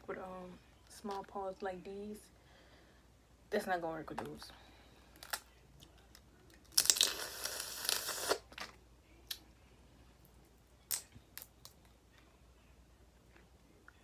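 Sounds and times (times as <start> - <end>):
crawfish shell cracking: 5.1 - 8.7, 10.9 - 11.9.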